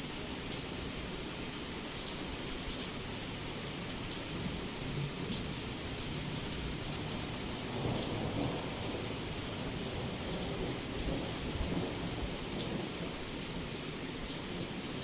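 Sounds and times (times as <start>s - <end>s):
heavy rain against a window: 0.0s - 15.0s
low rolling thunder: 6.8s - 13.5s.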